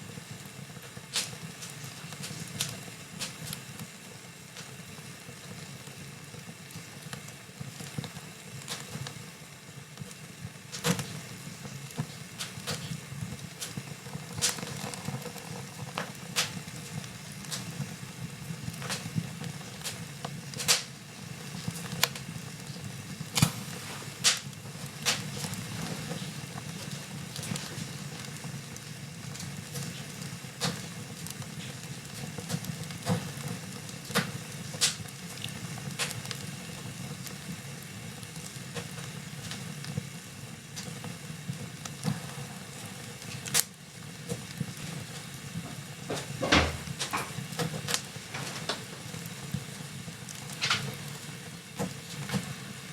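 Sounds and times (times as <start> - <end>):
low rumble of burning: 0.0 - 52.9
wood fire crackling: 0.0 - 52.9
heavy knock: 46.1 - 47.3.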